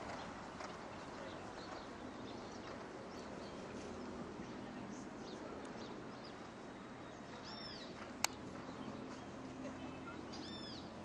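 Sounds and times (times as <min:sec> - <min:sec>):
outdoor background noise: 0:00.0 - 0:11.0
bird calling: 0:07.3 - 0:08.0, 0:08.7 - 0:11.0.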